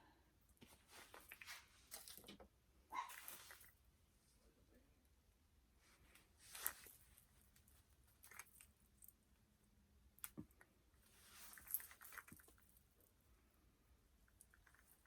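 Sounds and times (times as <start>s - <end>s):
soft rustles of hair: 0.5s - 2.4s, 3.0s - 4.6s, 5.8s - 9.2s, 11.0s - 13.2s.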